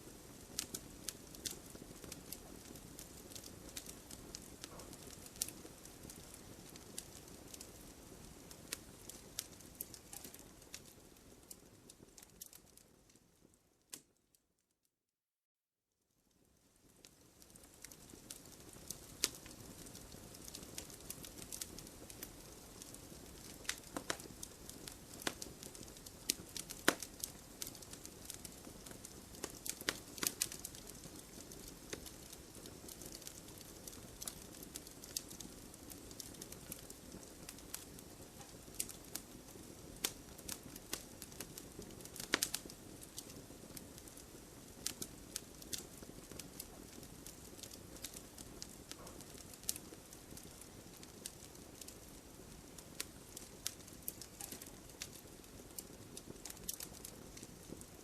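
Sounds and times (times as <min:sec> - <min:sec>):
firewood crackling and popping: 0:00.0 - 0:14.2, 0:16.3 - 0:58.0.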